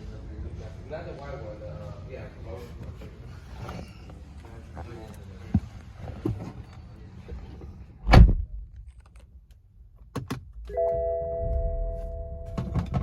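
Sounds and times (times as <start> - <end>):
car door shutting: 8.0 - 8.5
steady multi-pitch tone: 10.7 - 13.0.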